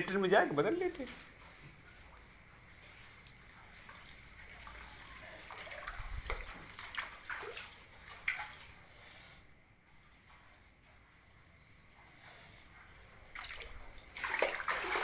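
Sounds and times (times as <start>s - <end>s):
water splashing and sloshing: 1.0s - 15.0s.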